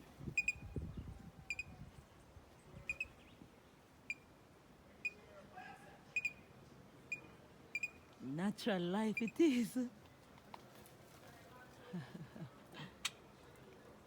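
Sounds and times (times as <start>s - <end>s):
bird calling with high pip notes: 2.9s - 3.3s.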